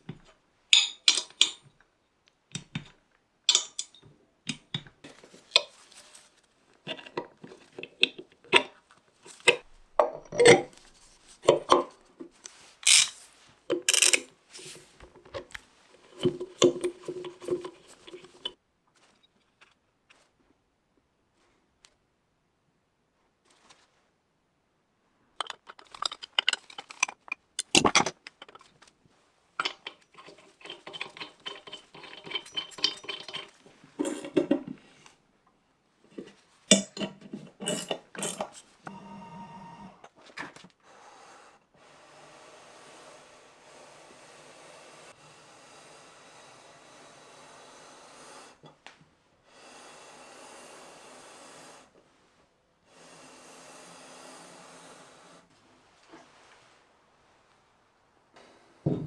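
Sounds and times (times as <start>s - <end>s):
faint steady noise: 0.0s - 59.0s
metal tools clinking on workbench: 0.8s - 1.6s, 3.5s - 4.1s, 12.8s - 14.7s, 36.7s - 38.6s.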